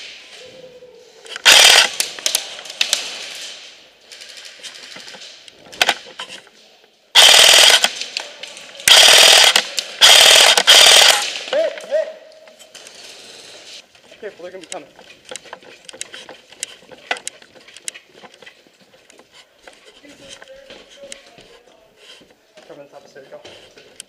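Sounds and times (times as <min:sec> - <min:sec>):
airsoft rifle bursts: 0:01.3 - 0:02.5, 0:07.2 - 0:08.0, 0:08.8 - 0:11.8.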